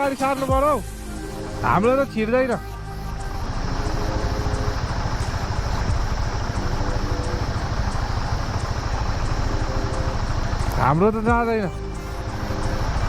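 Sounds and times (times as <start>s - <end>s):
motorcycle engine running: 0.5s - 13.0s.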